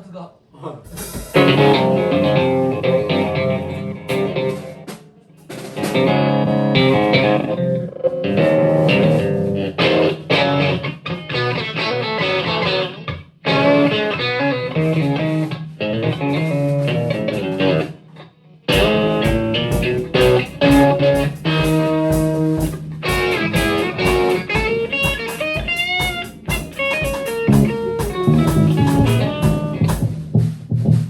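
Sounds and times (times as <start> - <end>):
steady low beat: 0.9 - 5.7, 18.7 - 31.0
electric guitar: 1.1 - 30.8
bass line: 1.4 - 4.5, 6.1 - 9.8, 27.4 - 31.0.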